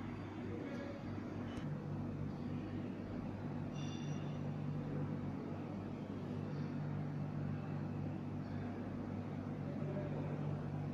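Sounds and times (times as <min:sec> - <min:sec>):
low electrical hum: 0:00.0 - 0:10.9.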